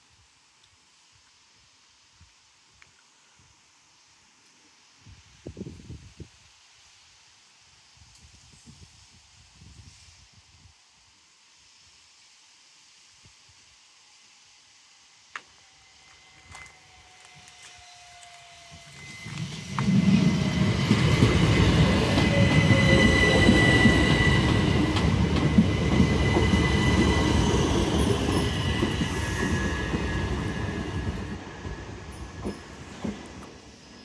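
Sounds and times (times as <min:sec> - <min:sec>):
high wheel squeal: 0:15.7 - 0:34.0
train wheels rumbling on rails: 0:16.0 - 0:34.0.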